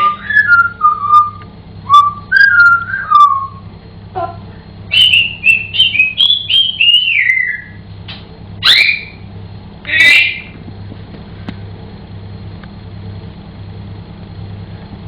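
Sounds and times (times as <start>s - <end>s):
parrot whistling: 0.0s - 3.6s, 4.9s - 7.8s, 8.6s - 9.2s, 9.9s - 10.5s
parrot squawk: 8.6s - 9.2s, 9.9s - 10.5s.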